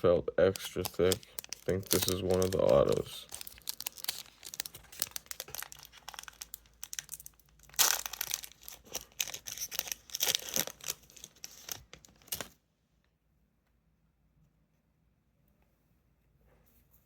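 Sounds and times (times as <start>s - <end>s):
card pack wrapper crinkling and tearing: 0.4s - 12.6s.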